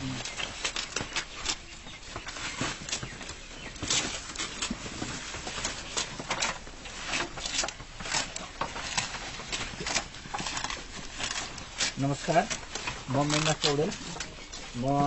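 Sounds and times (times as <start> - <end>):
goats rustling and clicking: 0.0 - 15.0.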